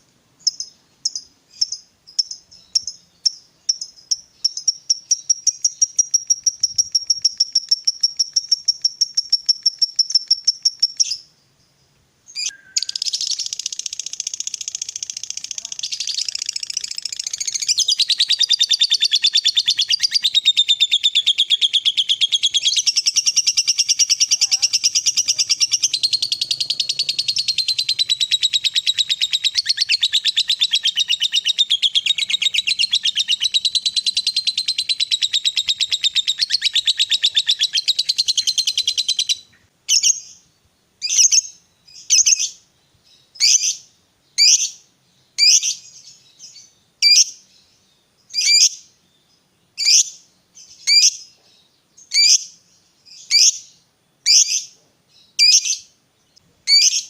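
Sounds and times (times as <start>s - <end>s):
lovebird chattering trill: 0.4s - 11.3s, 12.4s - 40.4s, 46.5s - 47.4s, 48.4s - 48.8s, 52.1s - 52.6s, 55.4s - 55.9s, 56.7s - 57.0s
lovebird short calls: 12.4s - 40.2s.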